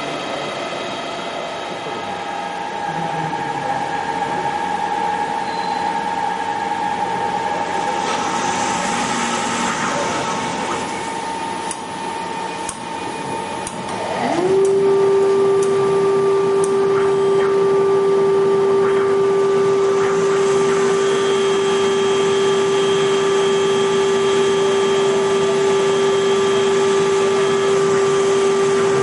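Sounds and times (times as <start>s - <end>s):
wood lathe motor whine: 13.0s - 29.0s
motor spinning up: 13.8s - 29.0s.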